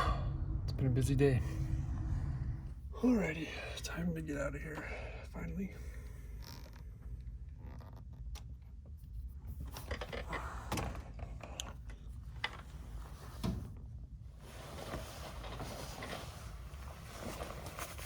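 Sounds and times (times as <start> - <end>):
low steady rumble: 0.0 - 7.6.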